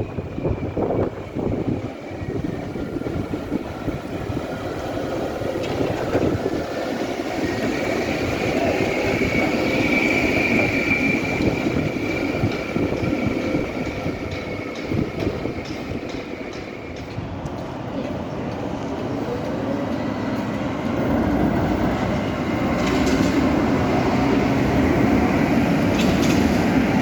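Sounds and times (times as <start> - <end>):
tram running on rails: 0.0 - 27.0.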